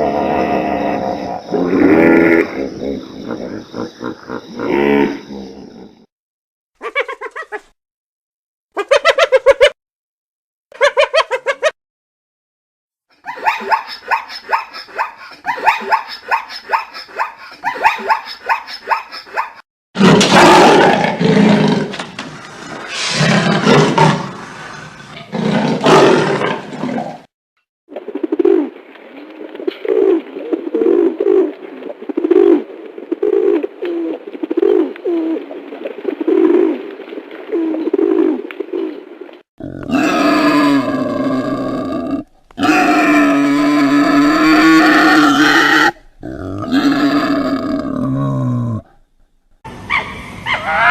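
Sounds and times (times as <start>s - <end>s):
animal roaring: 0.0s - 6.1s, 20.0s - 22.0s, 22.6s - 27.2s, 39.6s - 49.0s
low repeated animal calls: 0.0s - 6.1s, 39.6s - 49.1s.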